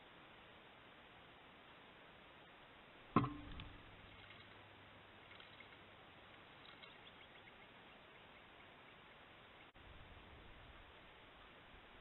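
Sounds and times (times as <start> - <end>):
sharp knock: 3.2 - 3.8
faint high bird chirps: 5.2 - 9.8.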